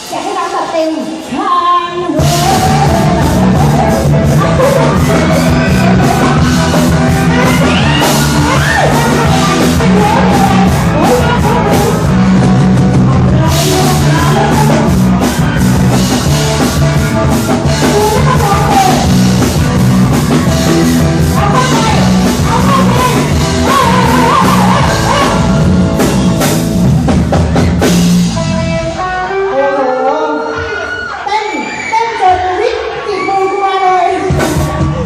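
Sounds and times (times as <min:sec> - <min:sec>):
live rock band playing: 0:00.0 - 0:35.0
person singing: 0:01.5 - 0:19.6, 0:20.3 - 0:26.1
drum kit: 0:02.1 - 0:29.9, 0:34.1 - 0:35.0.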